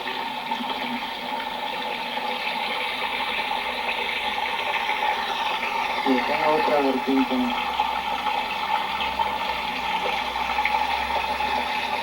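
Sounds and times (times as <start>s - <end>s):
hot spring water bubbling: 0.0s - 12.0s.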